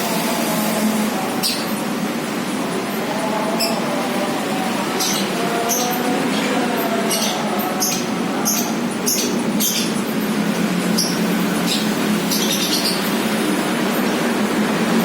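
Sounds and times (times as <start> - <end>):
steady background noise: 0.0 - 15.0
lovebird chirping: 5.0 - 6.0, 7.1 - 10.0, 10.9 - 13.1.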